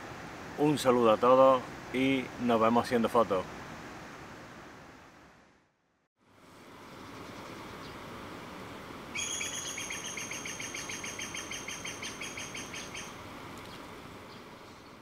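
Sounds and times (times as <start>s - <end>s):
steady outdoor hiss: 0.0s - 15.0s
bird trilling: 9.2s - 13.2s.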